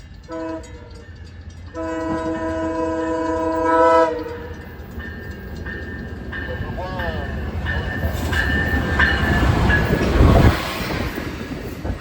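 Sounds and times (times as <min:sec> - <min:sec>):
train rumble: 0:00.0 - 0:12.0
locomotive air horn: 0:00.3 - 0:00.8, 0:01.8 - 0:04.5.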